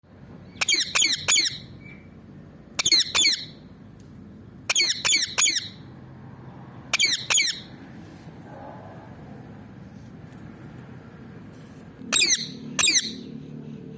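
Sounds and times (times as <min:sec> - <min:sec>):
parakeet shrill calls: 0:00.4 - 0:02.1, 0:02.8 - 0:03.6, 0:04.7 - 0:05.8, 0:06.9 - 0:07.7, 0:12.1 - 0:13.3.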